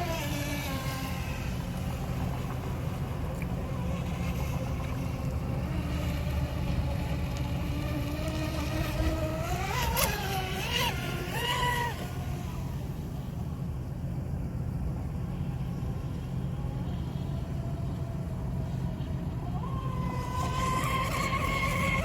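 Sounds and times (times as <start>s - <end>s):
remote-control speedboat motor whining: 0.0s - 22.0s.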